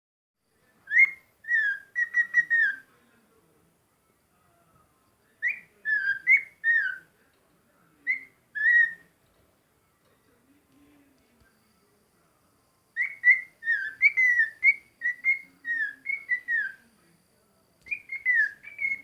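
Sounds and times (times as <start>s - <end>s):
bird singing whistled notes: 0.9s - 2.9s, 5.4s - 7.0s, 8.1s - 9.1s, 12.9s - 16.9s, 17.8s - 19.0s.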